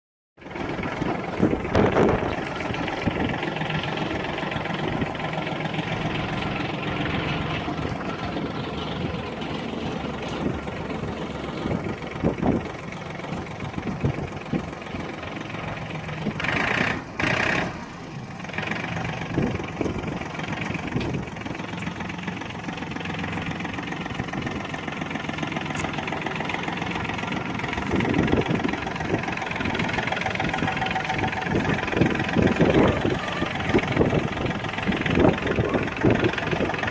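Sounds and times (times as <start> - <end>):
tractor diesel engine running: 0.4 - 36.9
brief higher-pitched sound: 32.6 - 33.9.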